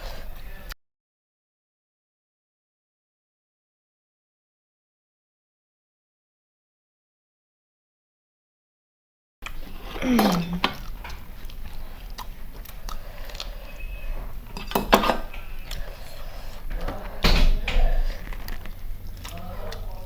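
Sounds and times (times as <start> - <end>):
dishes and utensils clinking: 9.5 - 11.6, 13.4 - 18.7.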